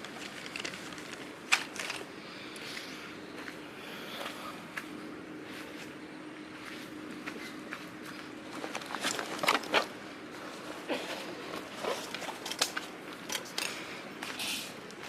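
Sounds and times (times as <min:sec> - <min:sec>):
gear being handled clicks: 0:00.0 - 0:02.1
steady background hiss: 0:00.0 - 0:15.0.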